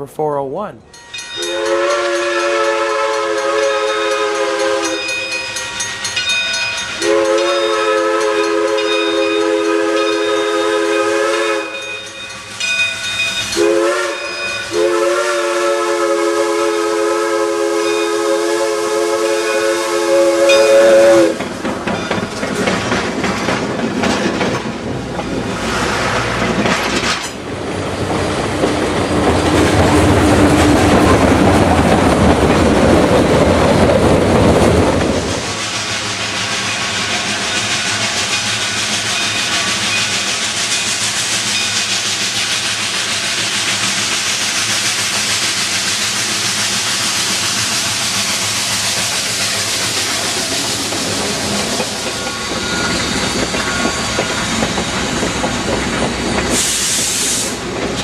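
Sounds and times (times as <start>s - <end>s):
steam locomotive chime whistle: 0.9s - 22.3s, 35.5s - 43.9s, 52.0s - 54.6s, 56.5s - 57.6s.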